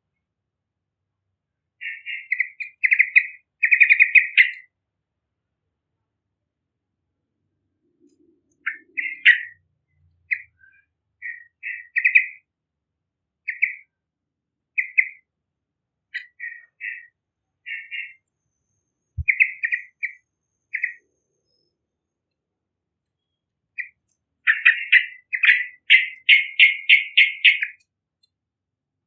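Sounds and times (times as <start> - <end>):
bird bubbly chirping calls: 8.6 - 9.6, 19.2 - 21.0, 24.5 - 27.8.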